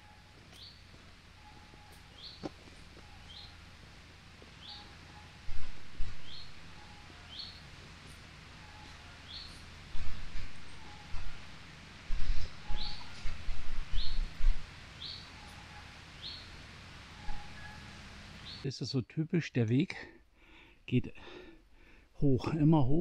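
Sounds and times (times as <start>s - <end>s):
songbird high call: 0.0s - 3.8s, 4.6s - 5.6s, 6.2s - 7.7s, 8.6s - 11.6s, 12.2s - 18.7s
low thumps and rumbles: 9.3s - 14.8s
fainter lower bird note: 17.2s - 18.0s.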